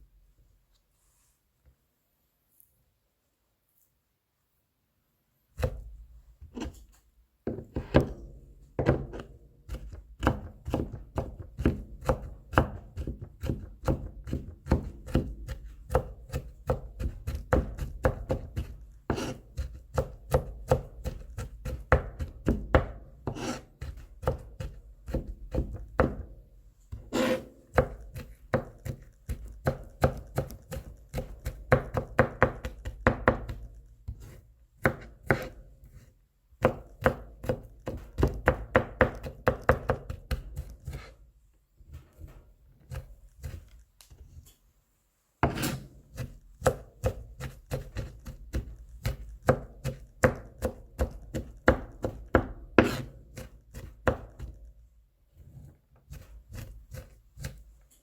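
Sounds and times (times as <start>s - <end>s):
knife chopping on cutting board: 5.6s - 6.9s, 7.5s - 36.0s, 36.6s - 41.1s, 42.9s - 43.8s, 45.4s - 54.6s, 56.1s - 57.6s.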